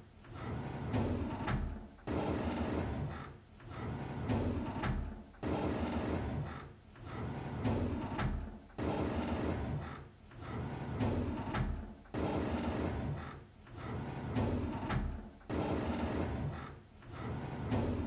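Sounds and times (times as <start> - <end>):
drawer sliding open: 13.8 - 18.0.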